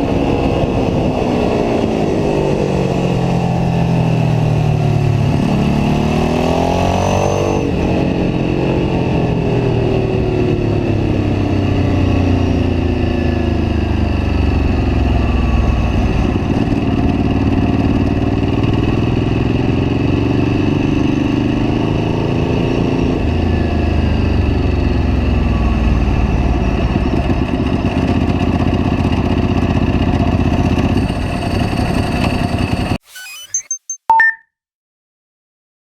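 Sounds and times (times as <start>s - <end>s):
motorcycle engine revving: 1.4s - 11.2s.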